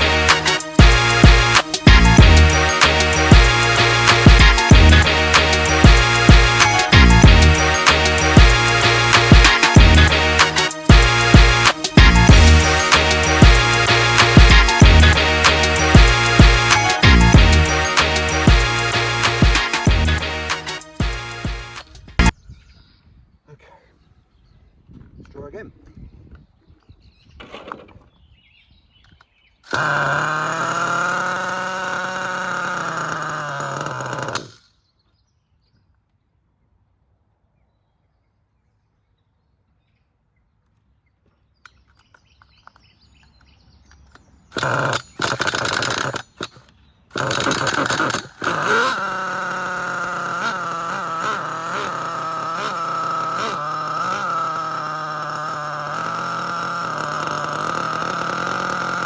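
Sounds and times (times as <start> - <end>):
engine firing in short bursts: 0.0 - 22.3, 29.7 - 34.7, 44.5 - 59.0
nitro engine idling: 0.0 - 22.3, 29.7 - 34.7, 44.5 - 59.0
nitro engine being spun over: 29.7 - 34.7, 44.1 - 59.0.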